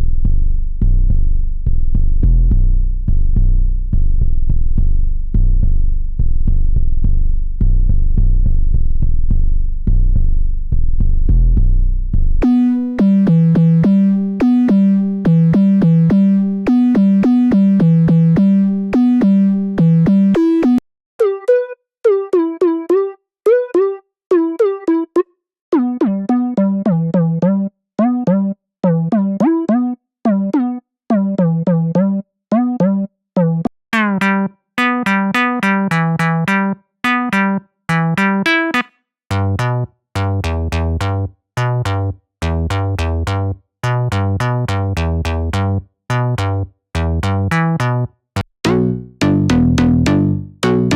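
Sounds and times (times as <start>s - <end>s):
software synthesizer riff: 12.4s - 25.2s, 25.8s - 48.0s, 48.6s - 50.9s.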